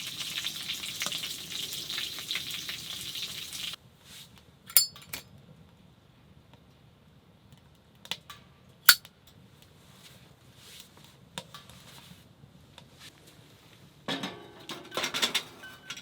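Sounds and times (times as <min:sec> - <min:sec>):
cups and utensils clinking: 0:14.1 - 0:16.0.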